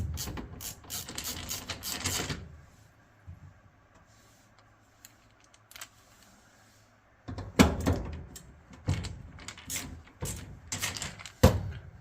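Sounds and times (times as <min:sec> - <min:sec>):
dryer housing parts clattering: 0:07.2 - 0:12.0.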